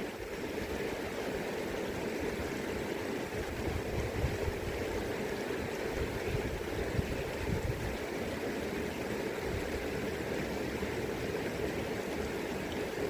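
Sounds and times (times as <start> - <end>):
river water rushing: 0.0 - 13.0
low wind rumble: 3.4 - 5.0, 5.6 - 8.0.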